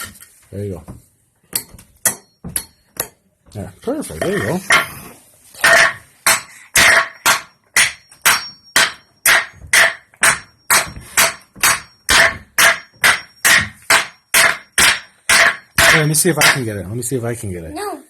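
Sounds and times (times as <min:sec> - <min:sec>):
hammer striking nail into wood: 0:01.5 - 0:03.2, 0:05.6 - 0:16.7.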